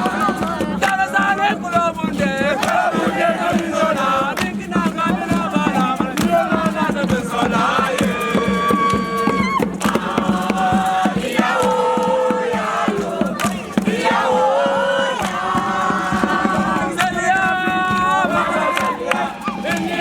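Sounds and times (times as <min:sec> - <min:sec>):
group singing a chant: 0:00.0 - 0:20.0
sharp percussive hits: 0:00.0 - 0:20.0.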